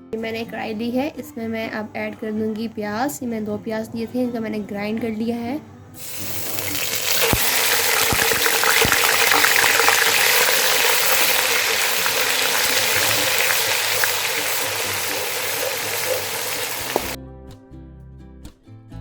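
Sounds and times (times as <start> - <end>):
background music: 0.0 - 19.0
onion paste sizzling in oil: 6.0 - 17.2.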